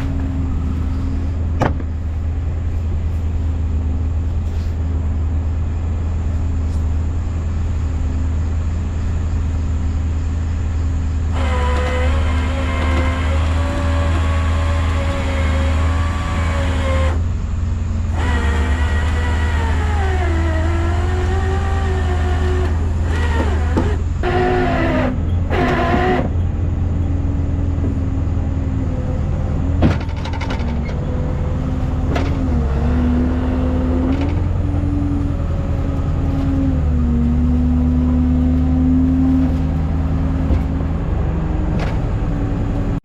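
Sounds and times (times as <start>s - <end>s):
tow truck engine drone: 0.0s - 43.0s
whine sliding down in pitch: 18.2s - 26.5s.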